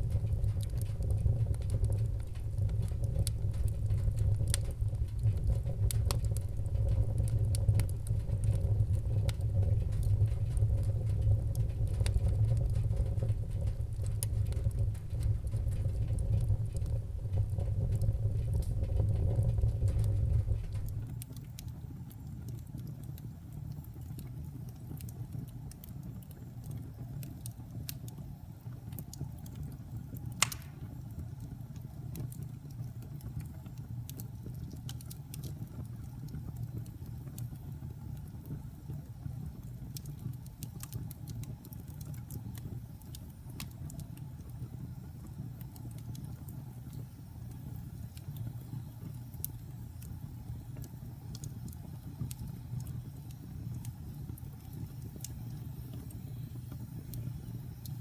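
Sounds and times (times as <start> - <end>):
fire roaring in fireplace: 0.0 - 58.0
wood fire crackling and popping: 0.0 - 58.0.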